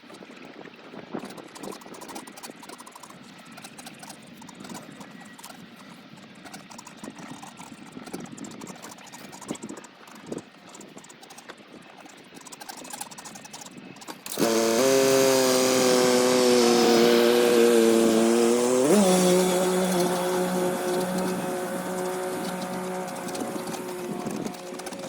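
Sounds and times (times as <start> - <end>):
engine running: 14.2 - 25.0.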